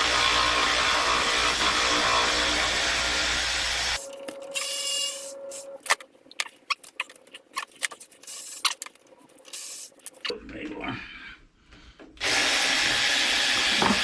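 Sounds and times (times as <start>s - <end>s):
tools and metal parts clicking: 5.8s - 10.3s.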